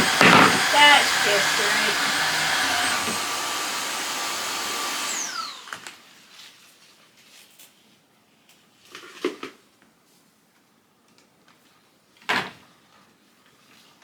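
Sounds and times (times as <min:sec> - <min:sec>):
vacuum mop motor whine: 0:00.0 - 0:06.0.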